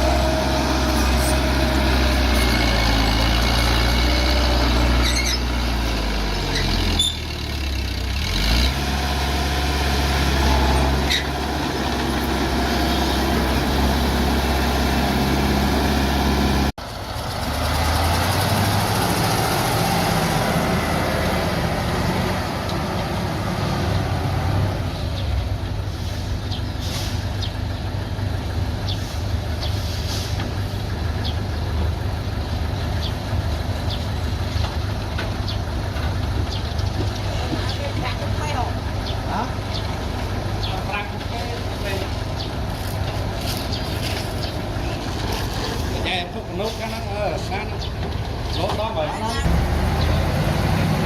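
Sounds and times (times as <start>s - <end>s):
bulldozer diesel engine running: 0.0s - 51.0s
short high squeaks: 5.0s - 5.6s, 6.5s - 7.3s.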